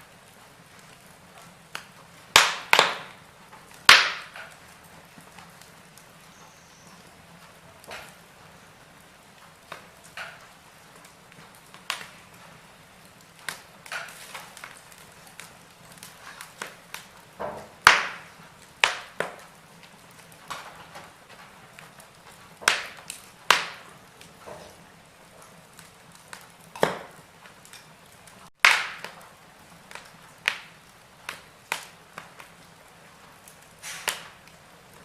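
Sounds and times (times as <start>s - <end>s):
fire pops and snaps: 0.0s - 35.0s
soft fire hiss: 0.0s - 35.0s
wood fire crackling: 0.0s - 35.0s.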